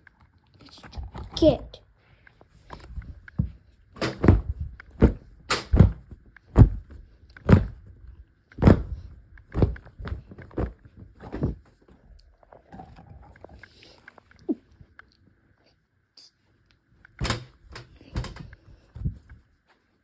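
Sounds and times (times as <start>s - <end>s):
dull thuds and knocks: 2.8s - 8.0s, 8.6s - 11.7s, 17.2s - 19.3s.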